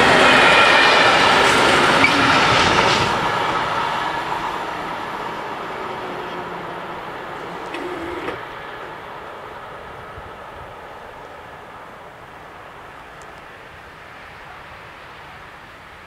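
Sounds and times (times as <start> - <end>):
freight train running: 0.0 - 16.0.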